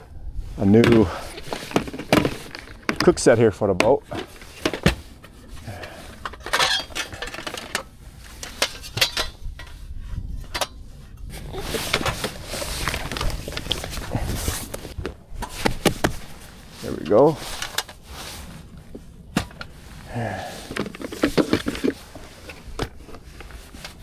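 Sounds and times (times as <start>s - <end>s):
metal pots clinking: 0.8s - 7.8s, 8.4s - 9.7s, 19.4s - 24.0s.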